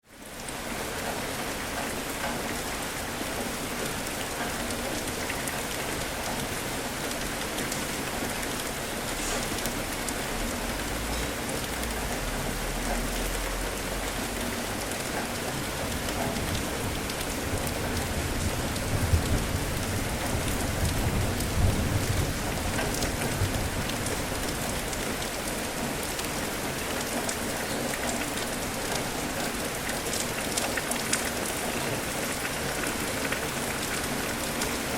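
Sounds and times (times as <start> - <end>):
heavy rain pattering: 0.0 - 34.9
thunder rumbles: 15.9 - 25.0.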